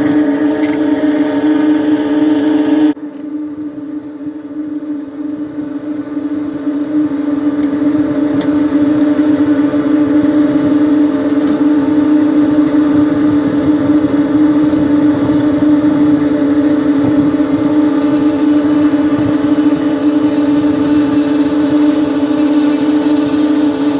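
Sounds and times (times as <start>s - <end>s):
engine droning: 0.0s - 23.9s.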